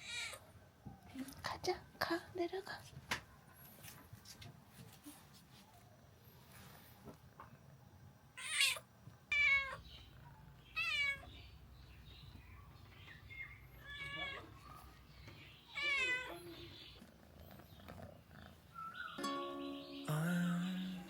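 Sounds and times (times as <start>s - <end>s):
cat meowing: 8.4s - 9.8s, 10.7s - 11.4s, 13.3s - 14.8s, 15.7s - 16.8s.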